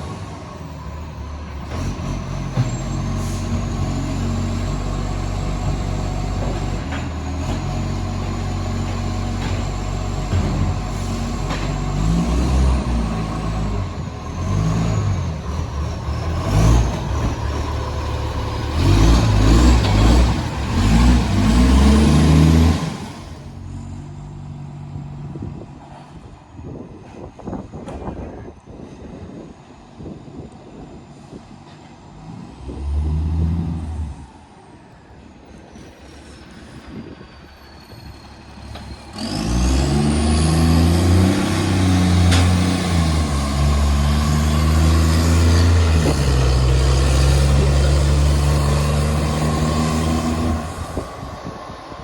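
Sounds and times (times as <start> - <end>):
diesel truck engine revving: 0.0 - 25.2, 32.1 - 34.3, 38.3 - 52.0.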